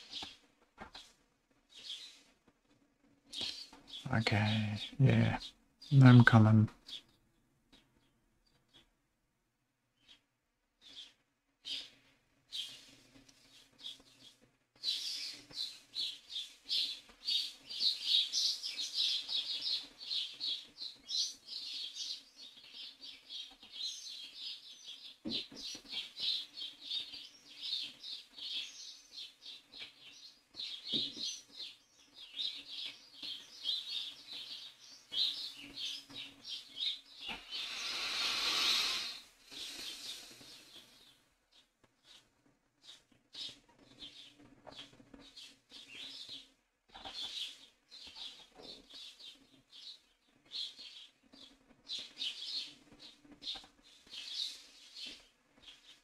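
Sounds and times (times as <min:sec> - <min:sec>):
small bird chirping: 0:00.0 - 0:02.3, 0:03.3 - 0:08.9, 0:10.0 - 0:56.0
rush of hissing noise: 0:37.4 - 0:40.6.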